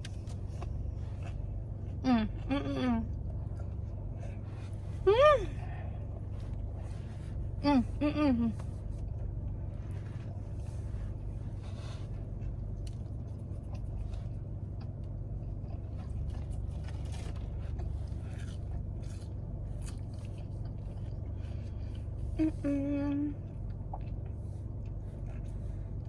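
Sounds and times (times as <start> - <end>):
person chewing and eating: 0.0 - 22.7, 23.4 - 26.0
steady low hum: 0.0 - 26.0
faint crunches and rustles: 15.7 - 21.6.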